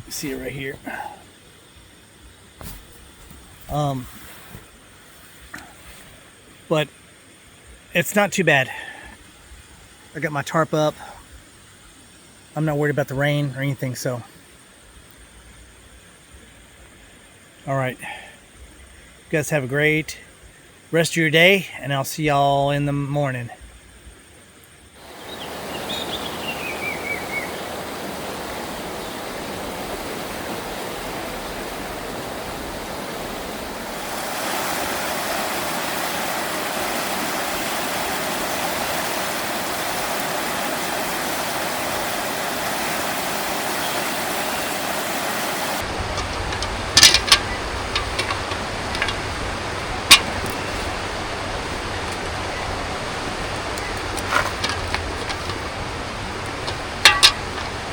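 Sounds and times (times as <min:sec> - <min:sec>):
river flowing: 0:00.0 - 0:08.1, 0:23.9 - 0:57.9
sharp knocks: 0:45.8 - 0:49.3, 0:50.1 - 0:50.6, 0:56.5 - 0:57.9.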